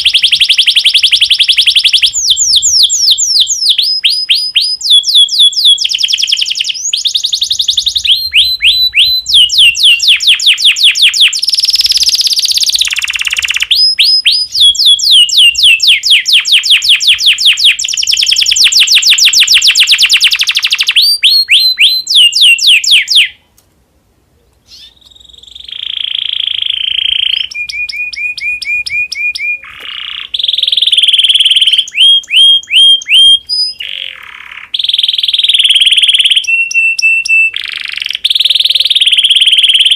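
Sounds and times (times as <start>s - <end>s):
canary singing rolling trills: 0.0s - 23.4s, 24.6s - 39.9s.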